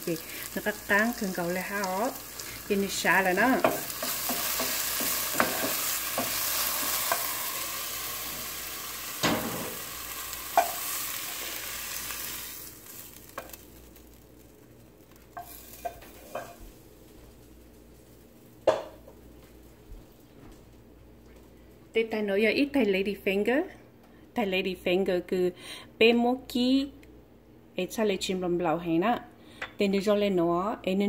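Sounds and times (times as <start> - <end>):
okra sizzling in oil: 0.0 - 19.0.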